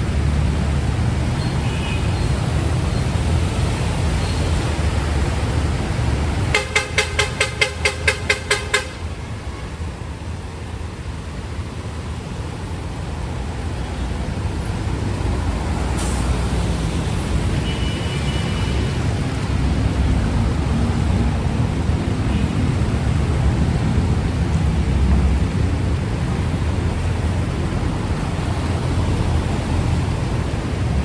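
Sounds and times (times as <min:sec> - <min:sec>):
street traffic noise: 0:00.0 - 0:31.0
vehicle horn short beeps: 0:06.5 - 0:09.1.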